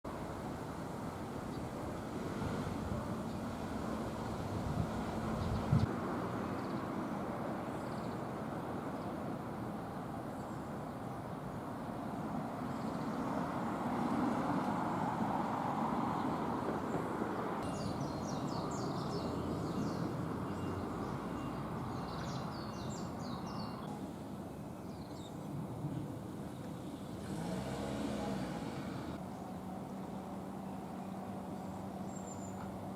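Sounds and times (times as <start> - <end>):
distant traffic rumble: 0.1 - 32.9
bird chirps: 17.6 - 24.0.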